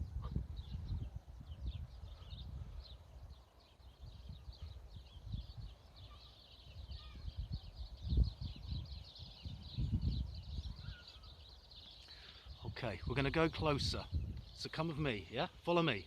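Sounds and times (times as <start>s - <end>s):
low rumbles on microphone: 0.0s - 3.4s, 6.8s - 11.0s
small birds chirping: 0.0s - 16.0s.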